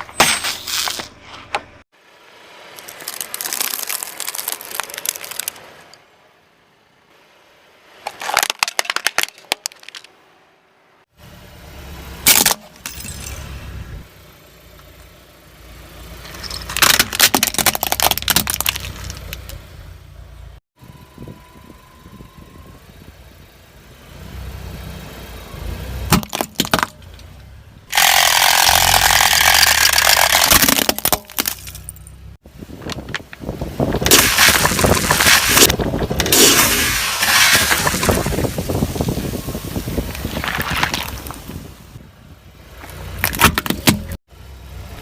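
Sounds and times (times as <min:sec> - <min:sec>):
tyre crushing objects crackling: 0:33.9 - 0:39.1, 0:40.0 - 0:41.6.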